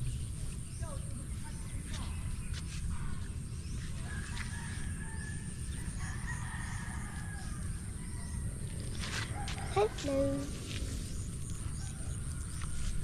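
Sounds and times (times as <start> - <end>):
rooster crowing: 4.1 - 8.4.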